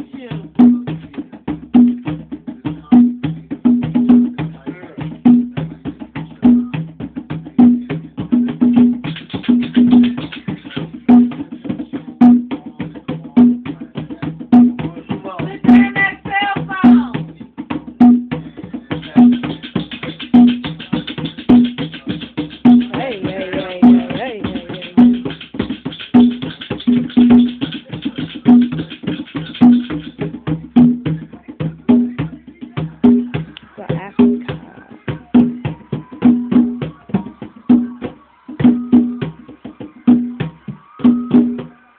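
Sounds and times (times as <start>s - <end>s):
drums in fast rhythm: 0.0s - 41.9s
person's voice: 22.9s - 25.2s, 33.1s - 35.6s.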